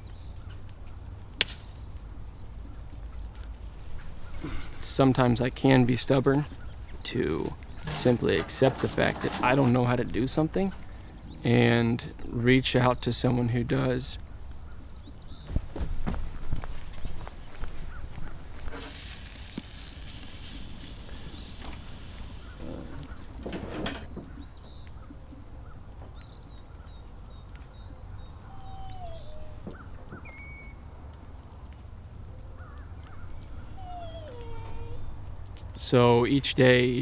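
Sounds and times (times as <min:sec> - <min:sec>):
rustling noise: 0:07.5 - 0:10.0
bird chirps and calls: 0:24.0 - 0:31.6, 0:32.6 - 0:35.5.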